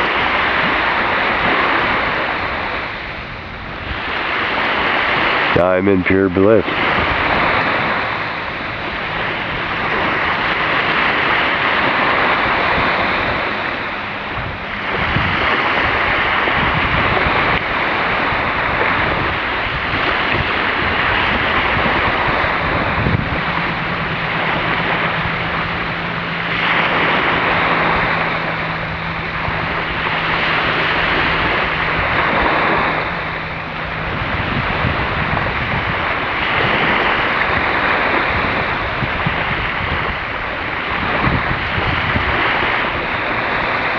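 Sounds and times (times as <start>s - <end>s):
loud outdoor rushing noise: 0.0s - 43.9s
steady low hum: 0.0s - 43.9s.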